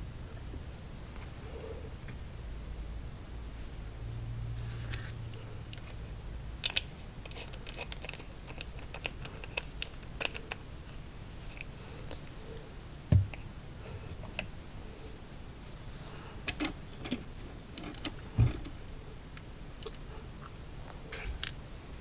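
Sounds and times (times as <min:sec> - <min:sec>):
loud thump: 0:13.1 - 0:13.4.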